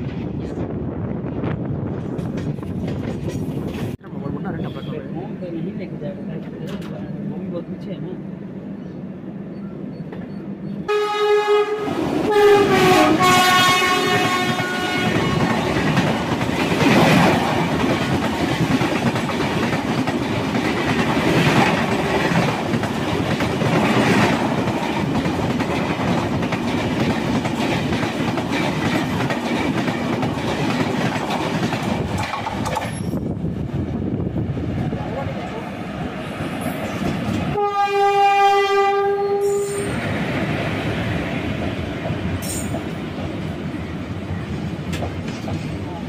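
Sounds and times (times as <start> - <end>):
train coaches rushing and rattling: 0.0 - 8.8, 9.5 - 46.0
train horn: 10.9 - 15.6, 37.5 - 39.9.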